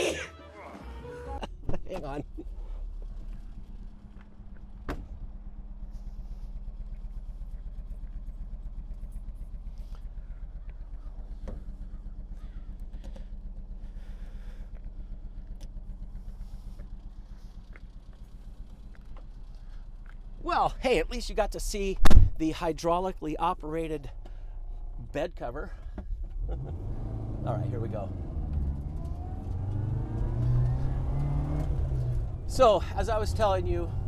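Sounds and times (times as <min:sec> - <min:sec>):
engine idling: 0:00.0 - 0:34.0
sharp engine knocks: 0:04.1 - 0:05.4.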